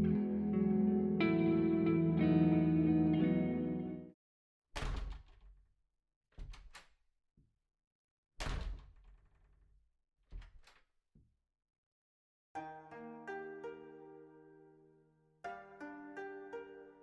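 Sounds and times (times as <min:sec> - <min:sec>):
plucked string music: 0:00.0 - 0:04.1.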